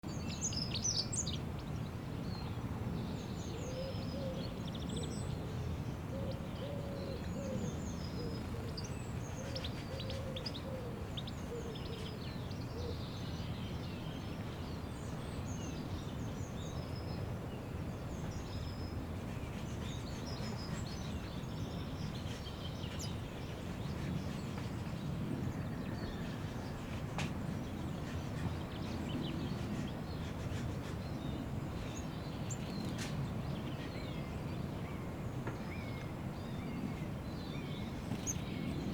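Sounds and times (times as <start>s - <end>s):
low cooing calls: 6.1s - 8.8s, 9.4s - 12.1s
small birds chirping: 6.3s - 38.9s.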